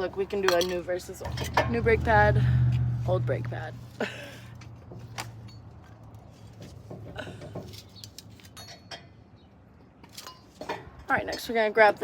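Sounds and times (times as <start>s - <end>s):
steady low hum: 1.3s - 4.6s.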